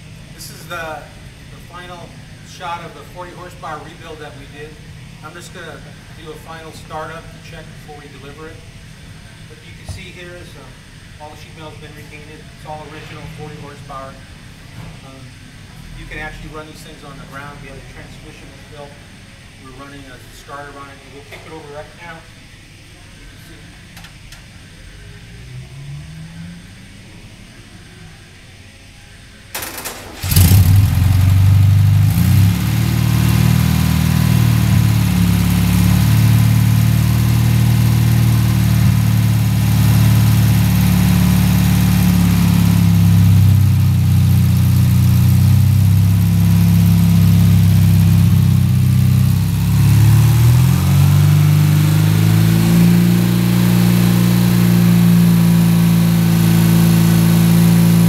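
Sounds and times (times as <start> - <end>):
engine running: 20.2 - 28.0, 29.6 - 58.0
engine starter cranking: 29.6 - 32.6.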